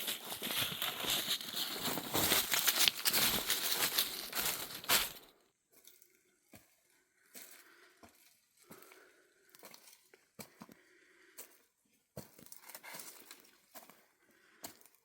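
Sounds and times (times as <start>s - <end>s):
rustling crinkling noise: 0.0s - 5.4s.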